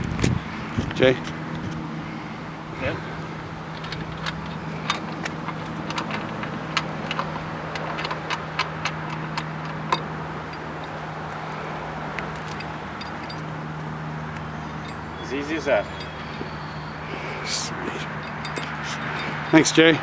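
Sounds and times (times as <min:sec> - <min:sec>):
lift jack metallic clicks: 0:03.7 - 0:11.0.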